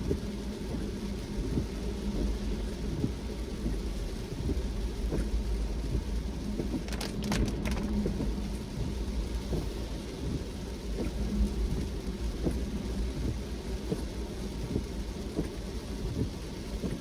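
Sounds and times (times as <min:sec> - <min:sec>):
rain on moving car: 0:00.0 - 0:17.0
car rumbling on road: 0:00.1 - 0:15.6.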